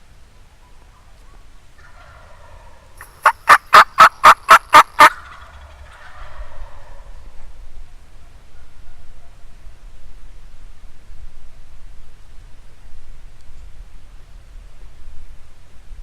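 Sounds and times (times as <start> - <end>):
faint turkey calling: 0.4 - 7.6
turkey yelping: 1.8 - 7.1.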